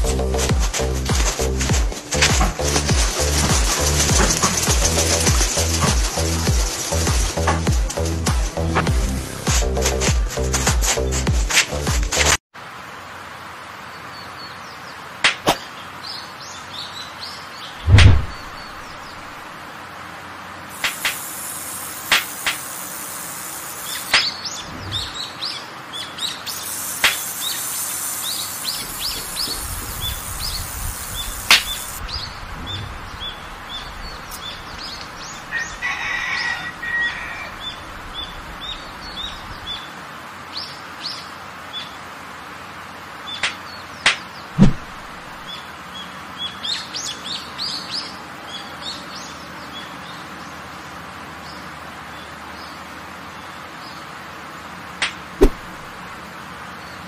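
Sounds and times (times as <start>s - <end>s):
birds chirping: 15.6s - 19.4s, 20.7s - 39.9s
loud thump: 17.8s - 18.6s, 44.6s - 45.0s, 55.4s - 55.8s.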